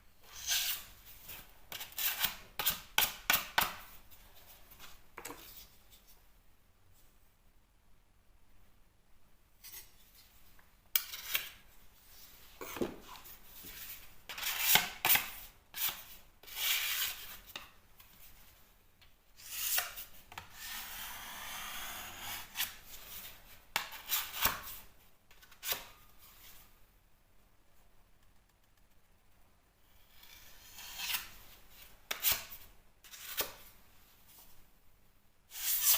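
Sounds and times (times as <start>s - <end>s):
hand tool scraping plasterboard: 35.5s - 35.9s.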